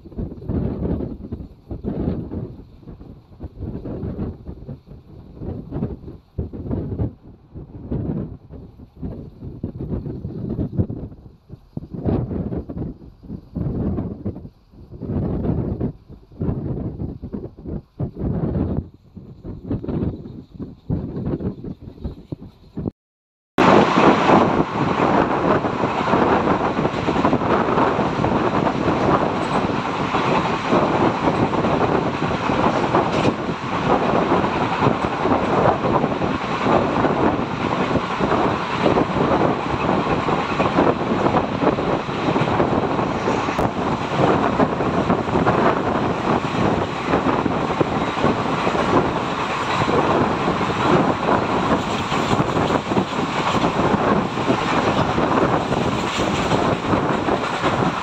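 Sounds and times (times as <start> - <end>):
train wheels on rails: 23.6 - 58.0.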